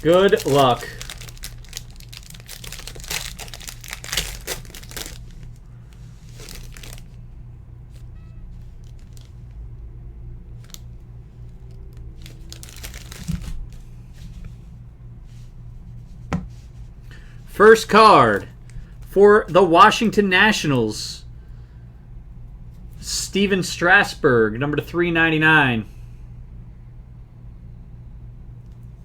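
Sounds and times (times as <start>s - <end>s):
card pack wrapper tearing and crinkling: 0.0s - 7.2s, 8.6s - 9.4s, 11.7s - 13.8s.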